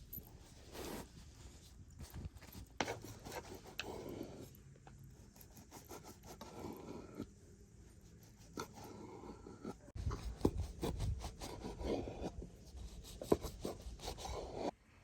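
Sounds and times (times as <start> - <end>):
rubbing and scraping: 0.0 - 14.7.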